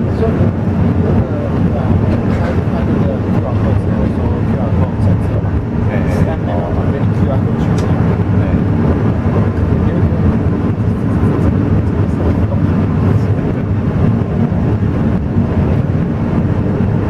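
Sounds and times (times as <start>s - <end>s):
train running low rumble: 0.0s - 17.0s.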